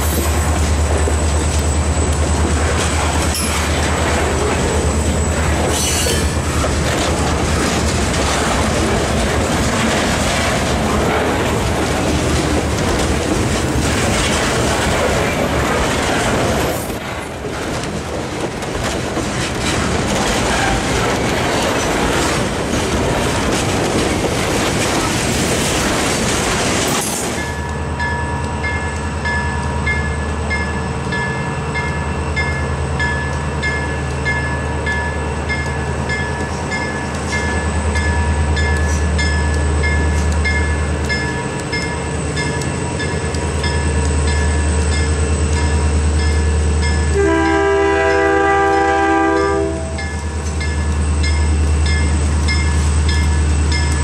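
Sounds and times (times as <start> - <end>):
freight train wheels clacking: 0.0 - 54.0
crossing bell ringing: 27.4 - 54.0.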